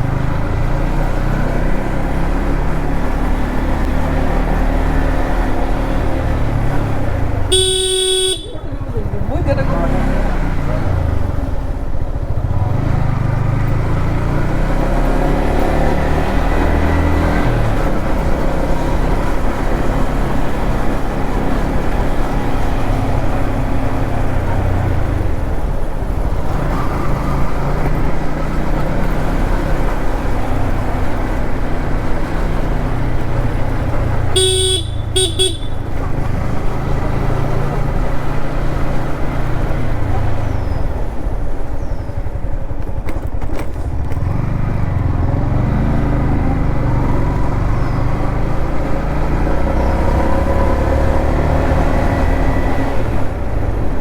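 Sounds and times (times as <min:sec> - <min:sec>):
motorcycle engine at speed: 0:00.0 - 0:54.0
horn toots: 0:07.4 - 0:08.8, 0:34.3 - 0:36.2.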